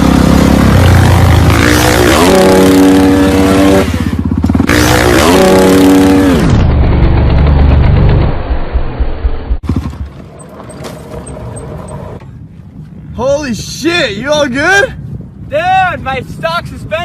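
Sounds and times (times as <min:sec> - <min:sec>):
motorcycle engine accelerating: 0:00.0 - 0:12.2.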